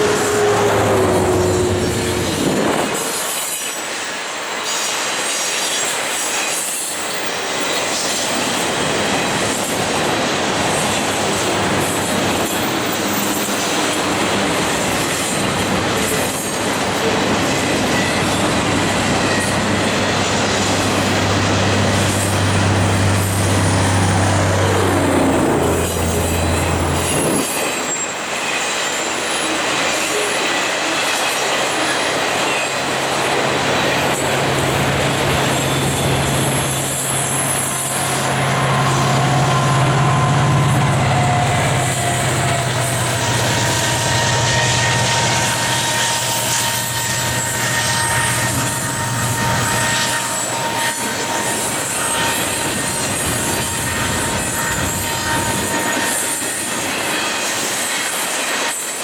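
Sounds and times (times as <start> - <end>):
freight train wheels rumbling on rail: 0.0 - 59.0
wheel squeal: 17.7 - 59.0.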